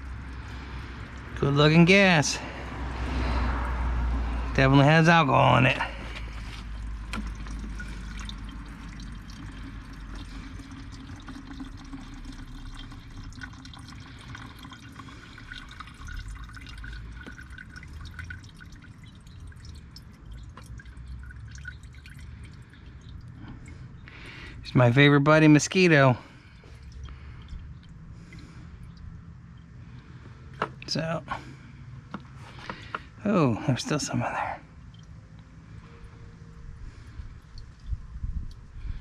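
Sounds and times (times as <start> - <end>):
gasoline trickling into container: 0.0 - 39.0.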